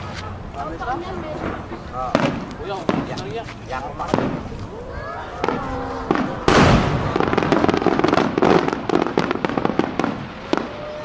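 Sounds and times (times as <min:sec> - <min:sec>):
fireworks crackling: 0:00.0 - 0:11.0
firework bang: 0:01.4 - 0:03.4, 0:04.0 - 0:04.5, 0:05.4 - 0:11.0.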